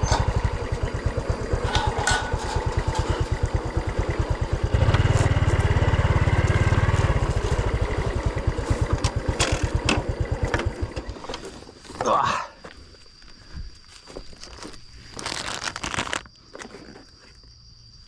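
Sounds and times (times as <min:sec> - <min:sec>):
brush cutter engine idling and revving: 0:00.0 - 0:11.6.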